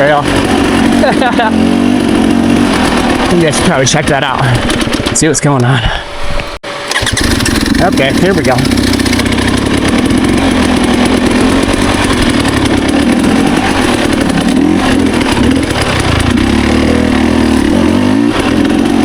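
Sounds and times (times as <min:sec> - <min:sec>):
dirt bike engine: 0:00.0 - 0:19.0.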